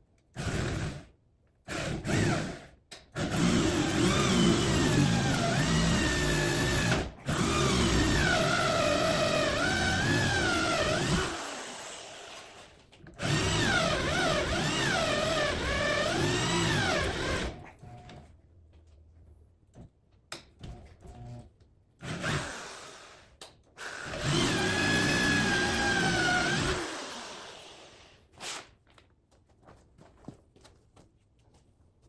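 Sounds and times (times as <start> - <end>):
power tool cutting: 24.0 - 28.1.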